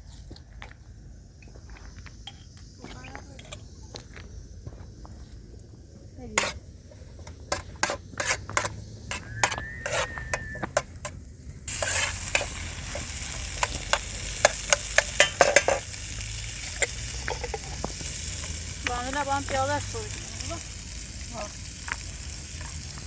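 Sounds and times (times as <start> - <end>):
loud frying sizzle: 6.2 - 23.0
utensil clicking against a pan: 7.2 - 19.6.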